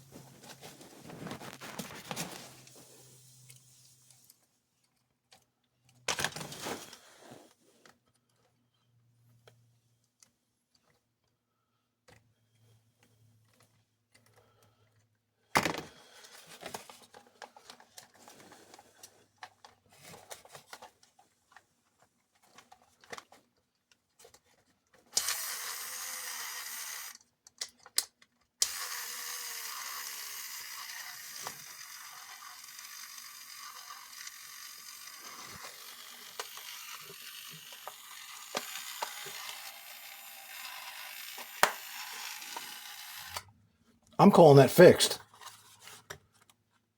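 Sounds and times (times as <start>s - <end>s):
toy robot motor whirring: 25.1s - 27.3s, 28.6s - 43.5s
plastic parts clicking: 27.4s - 28.5s.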